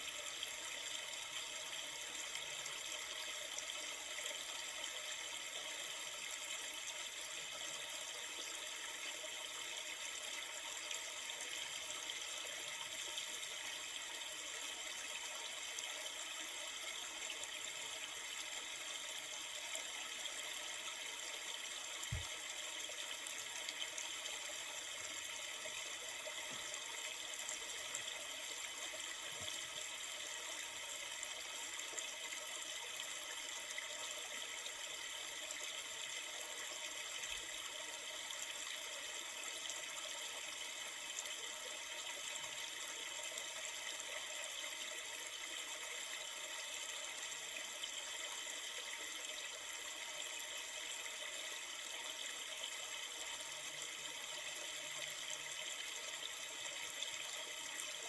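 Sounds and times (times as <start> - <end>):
river water flowing: 11.8 - 34.0.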